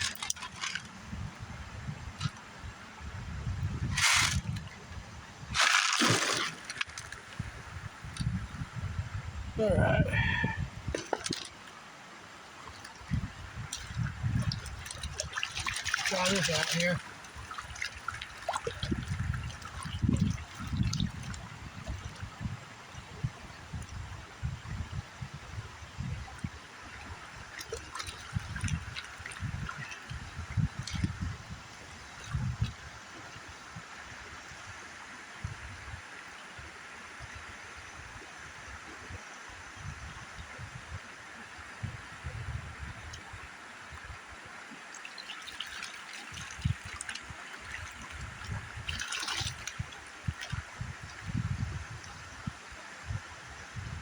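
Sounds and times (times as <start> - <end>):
river running: 0.0 - 24.6, 25.2 - 53.8
water sloshing in a pan: 13.6 - 21.3.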